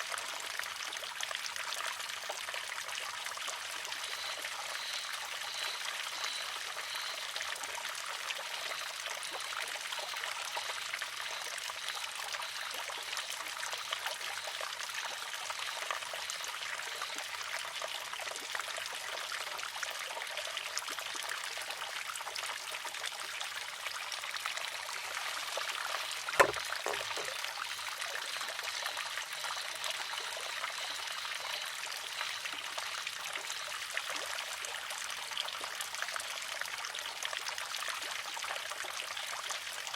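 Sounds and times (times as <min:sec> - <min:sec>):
water trickling: 0:00.0 - 0:39.6
faint knock: 0:26.4 - 0:27.3
bamboo arm clacking on stone: 0:26.4 - 0:27.4.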